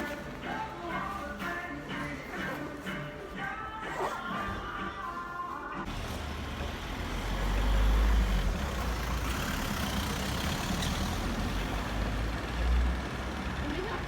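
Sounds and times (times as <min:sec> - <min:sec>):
large vehicle engine rumble: 0:05.8 - 0:14.0
traffic noise: 0:05.8 - 0:14.0.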